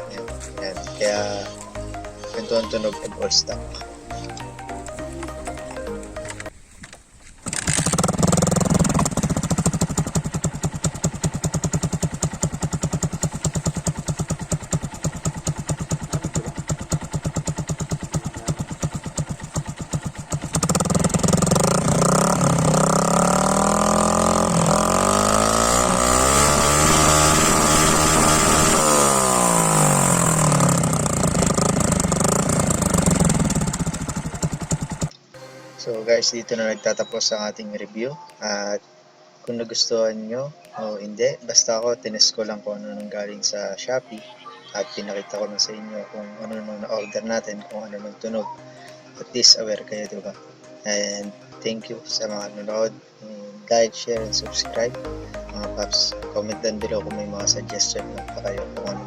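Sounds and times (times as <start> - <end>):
motorcycle engine idling and revving: 0.0 - 6.6, 7.4 - 35.2.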